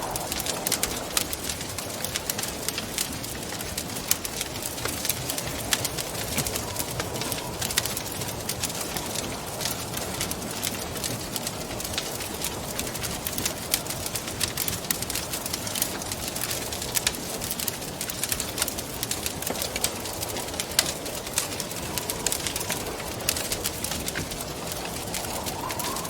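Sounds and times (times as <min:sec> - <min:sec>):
rushing wind: 0:00.0 - 0:26.0
wood fire crackling and popping: 0:00.0 - 0:26.0.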